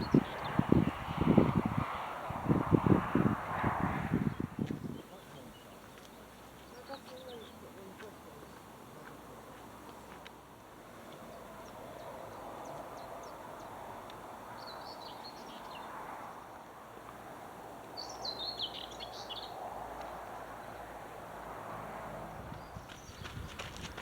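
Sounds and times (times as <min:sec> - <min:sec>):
small birds chirping: 0:04.3 - 0:08.7, 0:11.0 - 0:16.4, 0:17.8 - 0:20.9, 0:22.5 - 0:23.8
outdoor background hiss: 0:04.5 - 0:22.4.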